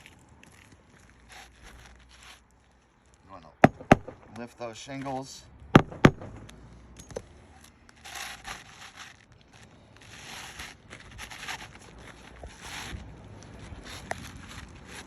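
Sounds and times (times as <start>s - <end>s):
shingles scraping and crinkling: 0.0s - 15.0s
sharp knock: 3.6s - 4.3s, 5.8s - 6.5s.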